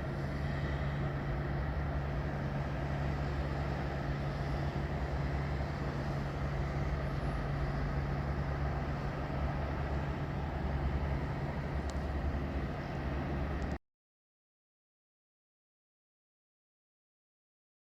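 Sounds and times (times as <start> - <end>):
train running by: 0.0 - 13.8.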